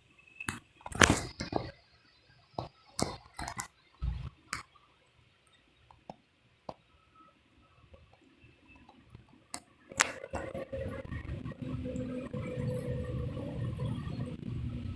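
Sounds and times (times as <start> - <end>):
dull thump: 4.0 - 4.3.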